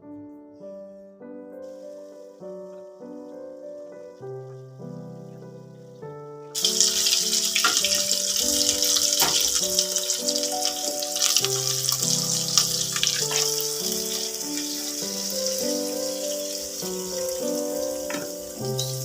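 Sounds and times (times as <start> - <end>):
soft background music: 0.0 - 19.0
tap water running into sink: 6.6 - 19.0.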